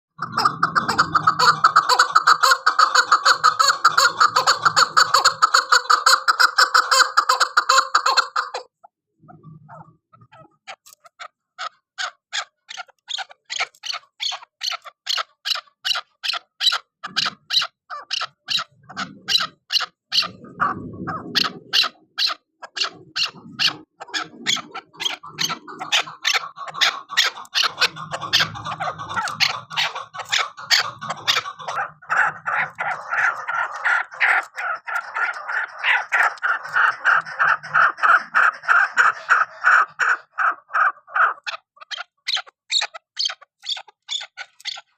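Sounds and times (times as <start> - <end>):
continuous bird chattering: 0.1 - 44.9
partridge chuk calls: 0.2 - 44.9.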